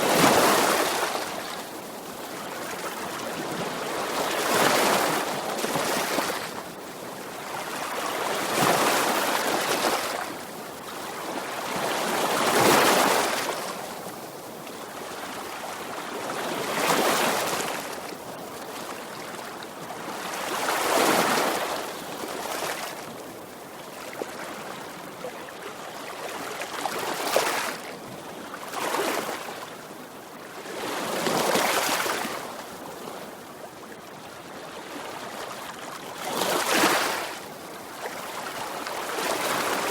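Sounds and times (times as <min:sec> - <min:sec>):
ocean waves breaking on shore: 0:34.9 - 0:39.9.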